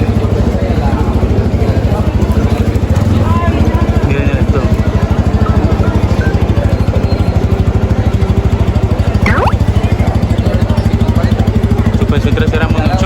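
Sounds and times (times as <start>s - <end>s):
short falling sliding tone: 9.3s - 9.6s.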